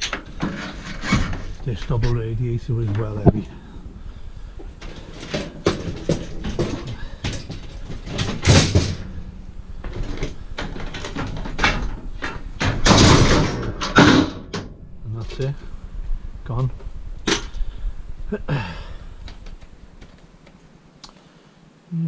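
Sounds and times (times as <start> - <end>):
scrap metal knocking and clattering: 0.0 - 2.2, 4.6 - 15.5.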